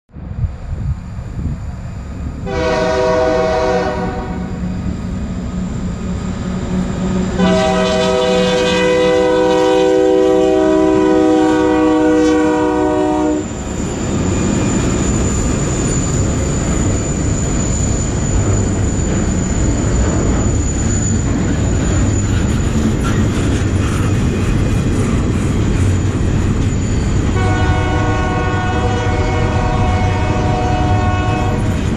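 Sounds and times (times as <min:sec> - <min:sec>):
locomotive engine rumble: 0:00.2 - 0:31.9
locomotive horn blasts: 0:02.4 - 0:04.6, 0:07.4 - 0:13.5, 0:27.3 - 0:31.8
steel wheels rolling past: 0:13.3 - 0:31.9.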